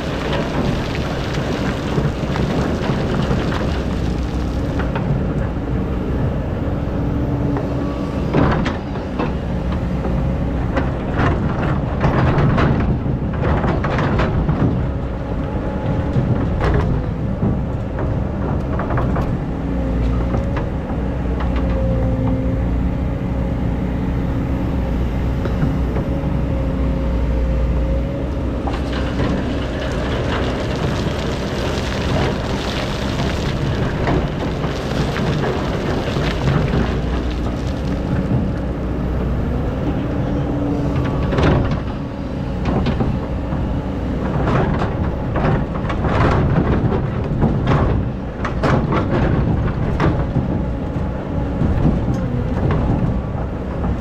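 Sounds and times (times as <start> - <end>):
excavator diesel engine: 0.0 - 54.0
bucket scraping and clanking: 28.6 - 38.5.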